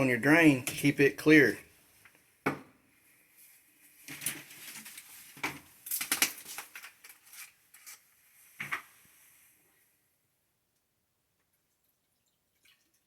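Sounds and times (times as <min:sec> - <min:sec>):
objects being handled: 0:03.9 - 0:09.0.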